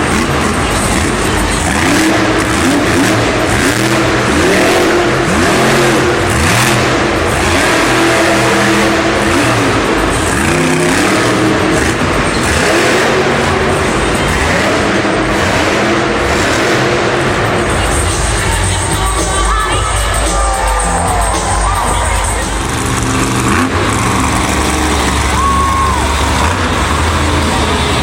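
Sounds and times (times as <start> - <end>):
arena crowd noise: 0.0 - 28.0
truck engine revving hard: 0.0 - 28.0.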